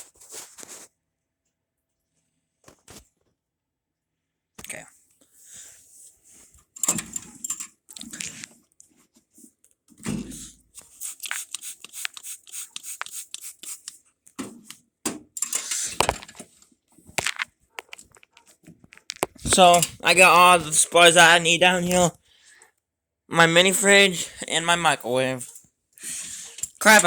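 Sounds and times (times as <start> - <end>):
objects knocking and clicking: 14.4 - 16.5, 17.1 - 20.0.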